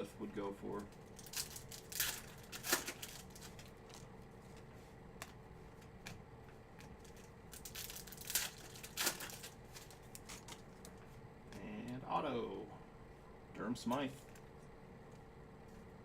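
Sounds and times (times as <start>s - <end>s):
faint steady hum: 0.0s - 16.0s
plastic wrappers crinkling and tearing: 0.8s - 4.6s, 7.0s - 11.0s.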